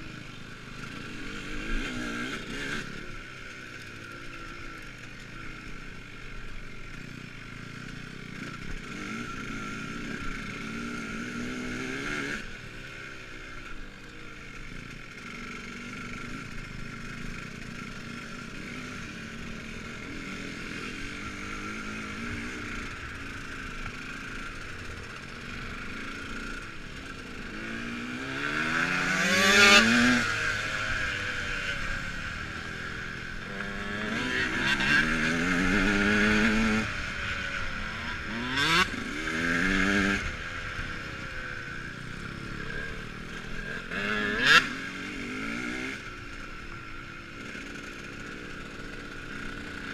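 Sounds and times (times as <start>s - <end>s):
dirt bike engine revving: 0.0s - 6.0s, 6.9s - 49.9s
dirt bike passing close: 0.0s - 49.9s.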